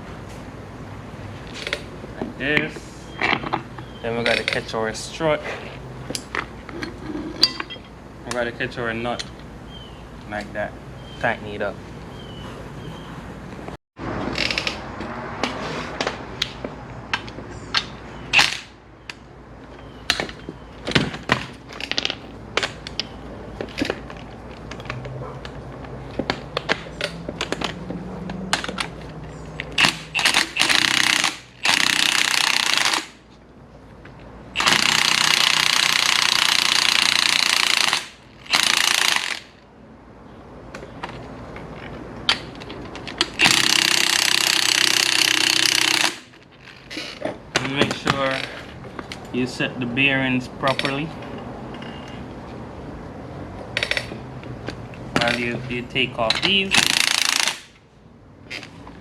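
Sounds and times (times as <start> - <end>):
impact wrench hammering: 29.8 - 33.2, 34.6 - 39.5, 43.2 - 46.4, 56.3 - 57.7.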